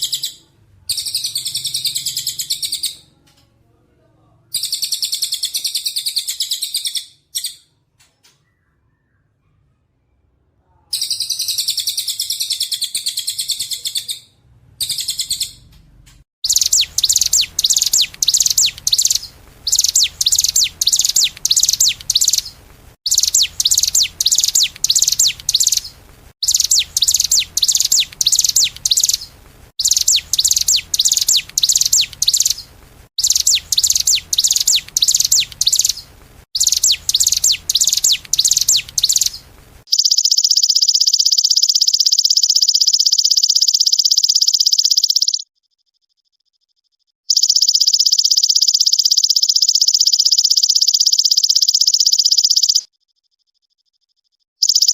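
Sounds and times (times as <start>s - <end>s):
songbird chirping trills: 11.0s - 45.5s, 47.3s - 53.4s, 54.1s - 54.9s.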